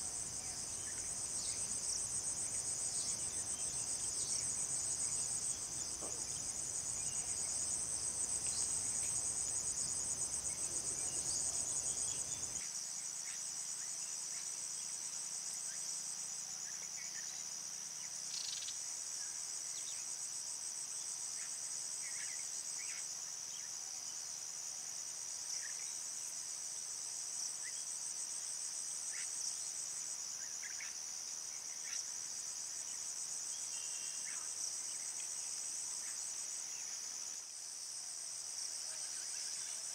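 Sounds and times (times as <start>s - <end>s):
crickets trilling: 0.0s - 12.6s.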